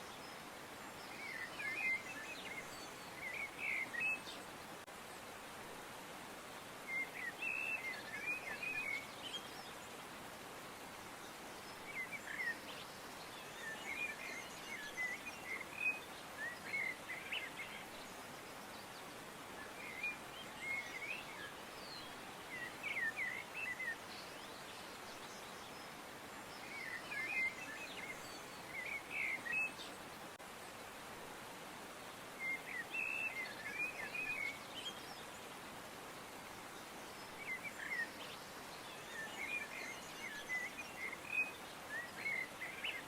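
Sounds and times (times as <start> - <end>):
soft background hiss: 0.0 - 43.0.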